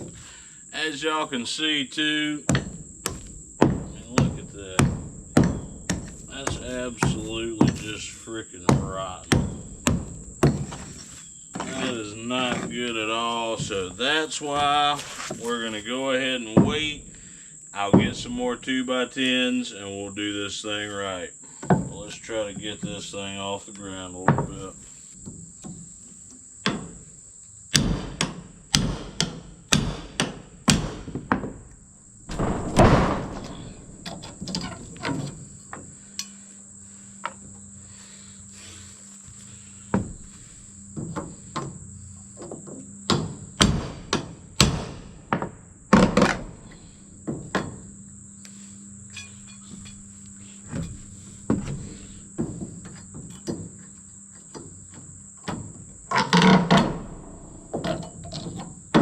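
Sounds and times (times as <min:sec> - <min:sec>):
insects droning: 0:00.0 - 0:59.0
hammer on wood: 0:02.5 - 0:08.0, 0:08.7 - 0:10.8, 0:27.7 - 0:31.6.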